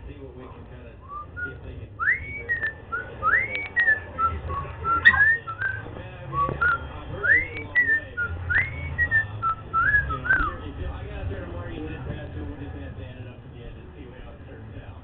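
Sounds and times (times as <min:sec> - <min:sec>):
cockatiel whistling a tune: 0:01.0 - 0:10.6
sharp clicks: 0:03.3 - 0:04.0.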